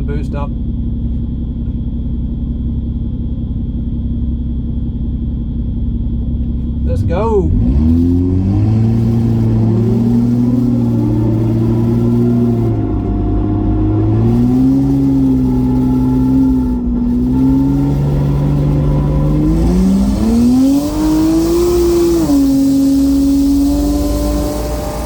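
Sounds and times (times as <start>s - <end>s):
car engine accelerating through gears: 6.4s - 25.0s.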